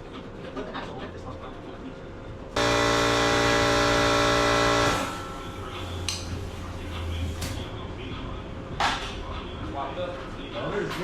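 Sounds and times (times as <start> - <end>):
car horn honking: 2.6 - 5.7.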